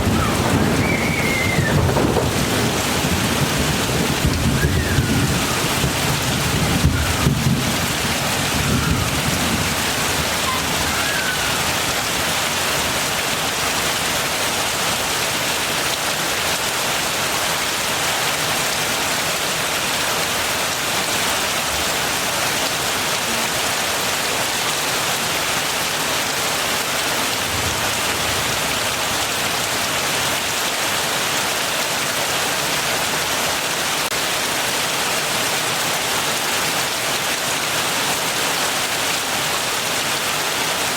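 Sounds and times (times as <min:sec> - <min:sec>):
thunder rumbling: 0:00.0 - 0:12.1
heavy rain falling: 0:00.0 - 0:40.9.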